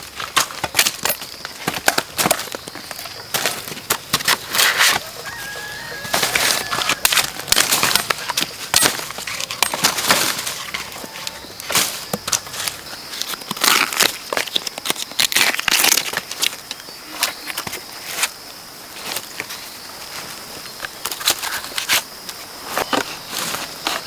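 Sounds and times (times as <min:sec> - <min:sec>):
dry plant material crackling: 0:01.5 - 0:16.5
chicken calling faintly: 0:04.5 - 0:08.4, 0:10.3 - 0:11.6.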